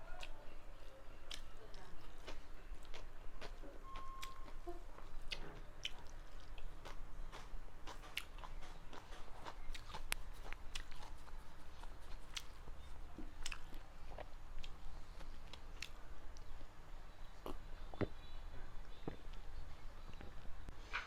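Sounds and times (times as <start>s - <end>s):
person chewing food: 0.1s - 18.3s
wet mouth clicks and smacks: 6.8s - 12.6s.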